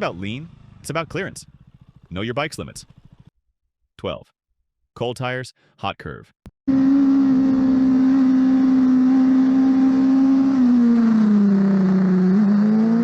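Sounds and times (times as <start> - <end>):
motorcycle engine revving: 0.0 - 2.2, 2.8 - 3.3, 6.7 - 13.0.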